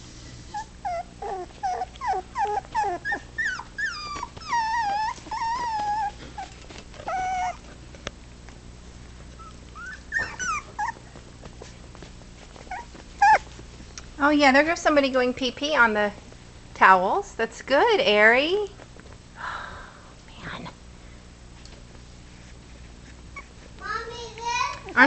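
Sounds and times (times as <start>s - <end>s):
puppies whimpering and yipping: 0.5s - 7.8s, 9.2s - 13.8s, 22.4s - 23.7s.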